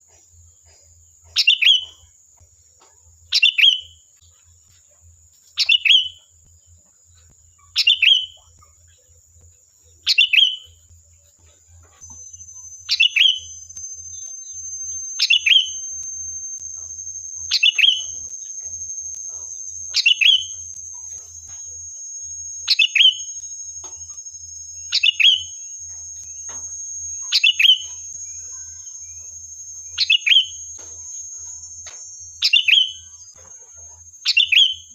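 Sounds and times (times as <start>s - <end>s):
bird chirping call: 1.2s - 2.1s, 3.3s - 4.0s, 5.6s - 6.2s, 7.2s - 9.1s, 9.9s - 34.9s
high-pitched whine: 7.2s - 34.9s.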